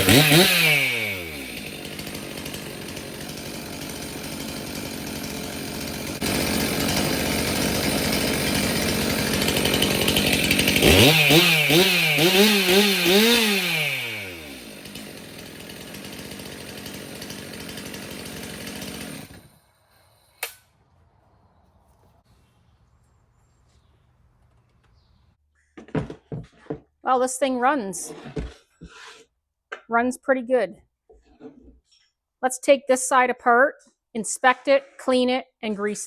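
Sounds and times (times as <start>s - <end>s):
chainsaw engine revving and idling: 0.0s - 19.6s.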